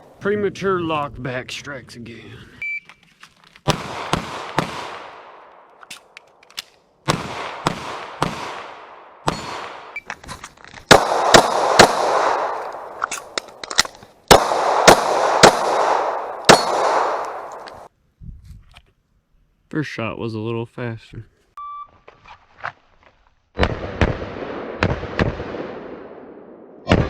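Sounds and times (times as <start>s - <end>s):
pistol shots echoing: 3.7s - 5.6s, 7.1s - 10.0s, 10.9s - 13.4s, 14.3s - 17.9s.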